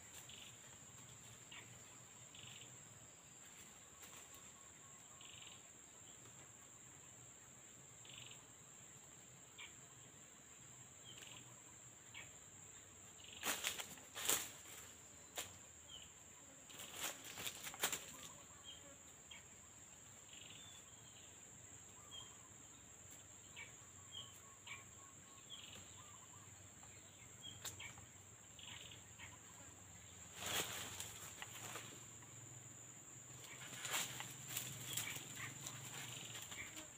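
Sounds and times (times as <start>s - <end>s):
high-pitched insect trill: 13.1s - 36.9s.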